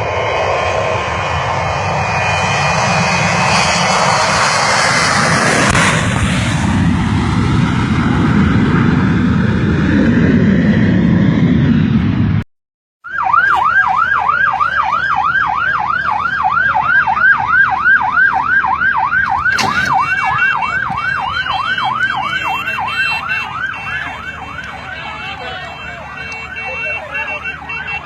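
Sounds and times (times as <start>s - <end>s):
emergency siren yelping: 13.0s - 28.0s.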